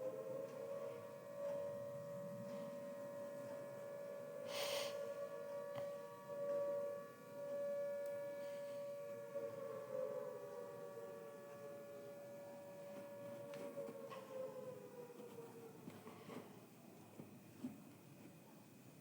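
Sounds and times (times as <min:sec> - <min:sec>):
air-raid siren wailing: 0:00.0 - 0:16.4
brief hiss: 0:04.5 - 0:05.0.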